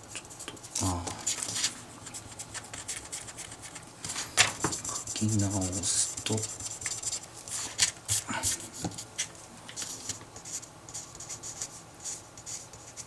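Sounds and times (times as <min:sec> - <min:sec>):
pen scratching on paper: 0:09.9 - 0:13.0.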